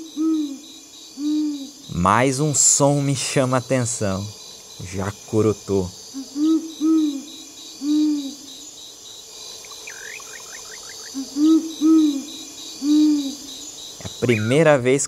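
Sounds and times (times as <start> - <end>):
owl hooting: 0.0 - 2.8, 5.8 - 8.6, 9.6 - 14.8
insects trilling: 0.0 - 15.0.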